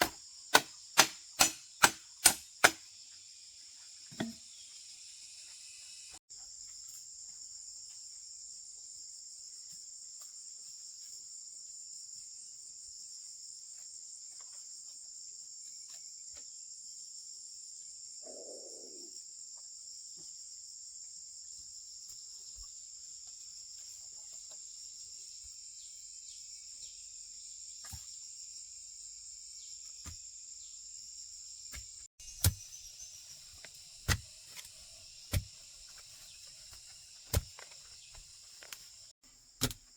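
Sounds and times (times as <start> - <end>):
sharp knocks: 0.0 - 2.8
insects trilling: 0.0 - 39.9.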